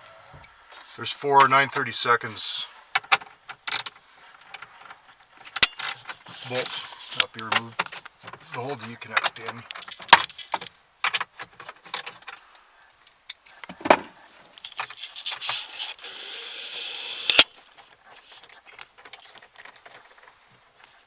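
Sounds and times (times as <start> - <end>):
metal tools and bolts clinking: 5.4 - 12.4, 13.7 - 16.0.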